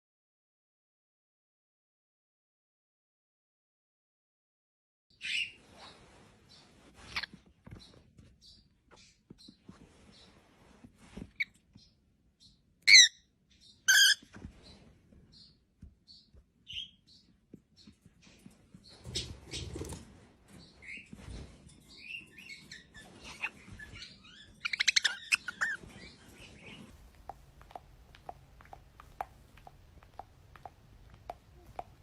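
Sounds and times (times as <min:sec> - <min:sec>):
parrot chirps and chattering: 0:12.9 - 0:13.2, 0:13.9 - 0:14.3, 0:21.9 - 0:32.0
parrot squawks: 0:12.9 - 0:13.2, 0:13.9 - 0:14.3, 0:24.6 - 0:25.8.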